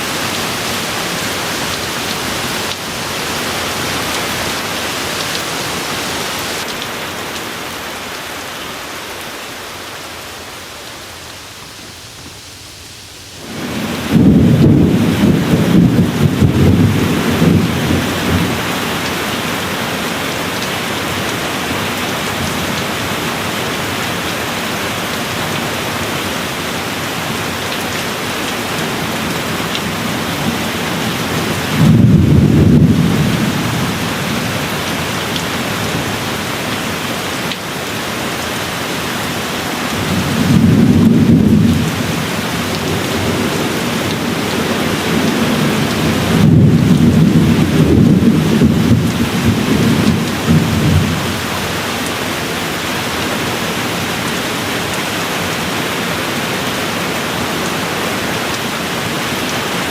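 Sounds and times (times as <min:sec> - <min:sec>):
thunder rumbling: 0:00.0 - 0:06.6, 0:13.4 - 0:18.6, 0:40.0 - 0:51.4
steady rain: 0:00.0 - 0:59.9.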